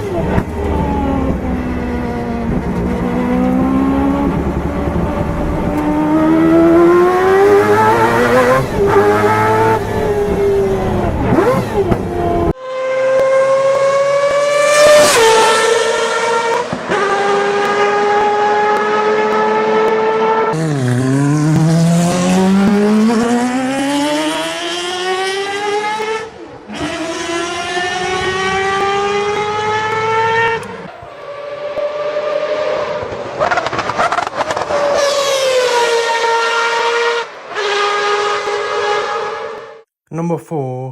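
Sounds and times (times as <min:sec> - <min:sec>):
rotary engine screaming at high revs: 0:03.0 - 0:39.7.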